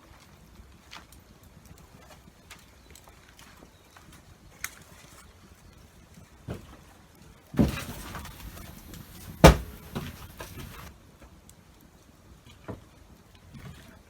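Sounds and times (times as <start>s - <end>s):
knocks: 7.6s - 10.9s
rustling handling noise: 7.6s - 10.9s.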